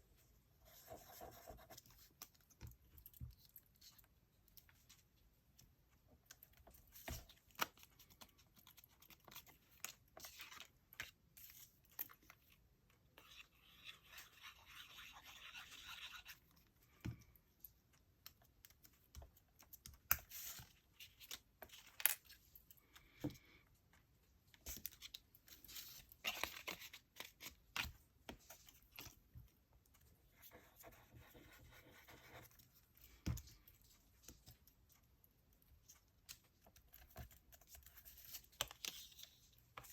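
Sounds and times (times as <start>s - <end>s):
paper scratches and rustles: 13.2s - 16.5s.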